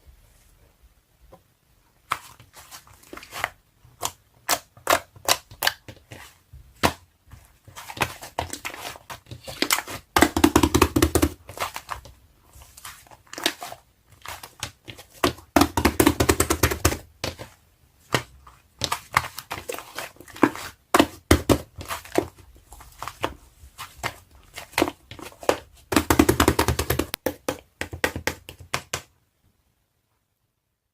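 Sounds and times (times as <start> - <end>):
wet slime squishes: 11.2 - 15.8.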